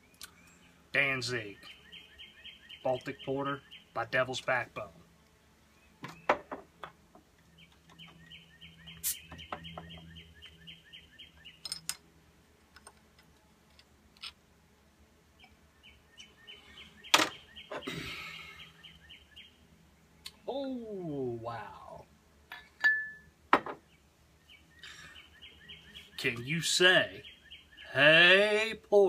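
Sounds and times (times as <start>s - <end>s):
bird chirping rapidly: 0.0s - 4.6s, 7.5s - 11.8s, 15.4s - 20.5s, 23.2s - 28.6s
bottle cap snapping off with hiss: 9.0s - 9.3s
glass clinking on tiled table: 22.6s - 23.7s.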